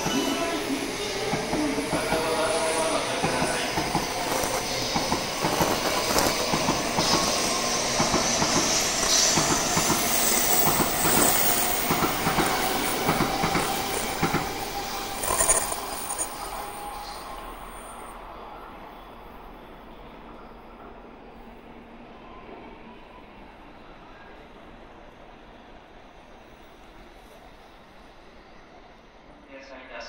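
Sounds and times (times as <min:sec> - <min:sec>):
train whine rising: 0:00.0 - 0:21.0
train wheels on rail clicking: 0:01.2 - 0:16.6.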